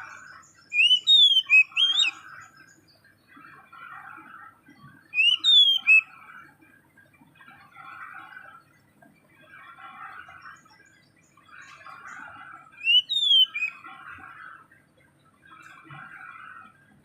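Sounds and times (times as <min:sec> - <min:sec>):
sharp whistled bird call: 0:00.7 - 0:02.2, 0:05.1 - 0:06.1, 0:12.8 - 0:13.8
small bird chattering: 0:00.7 - 0:02.3, 0:05.1 - 0:06.0, 0:12.8 - 0:13.8.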